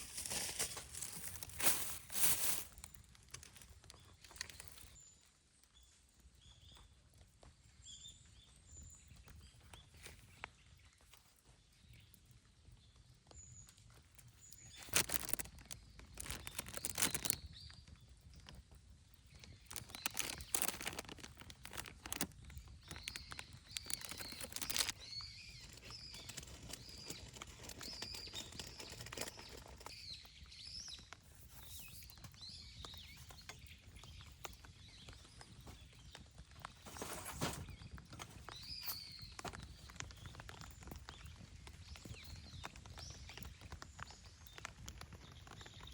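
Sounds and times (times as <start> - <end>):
rustling and handling noises: 0.0 - 5.0, 14.4 - 17.5, 19.4 - 30.2, 31.0 - 41.2
bird chirping: 19.1 - 45.9.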